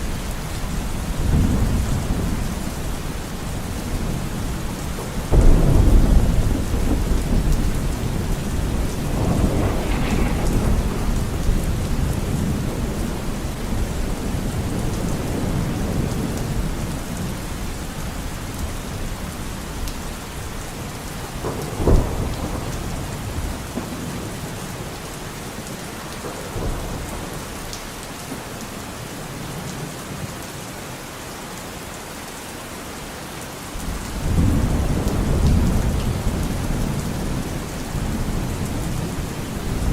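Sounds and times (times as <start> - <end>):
rolling thunder: 0.0 - 27.7, 33.8 - 39.9
steady rain: 0.0 - 39.9
sharp thunderclap: 3.9 - 16.9, 21.4 - 24.9, 33.8 - 39.9.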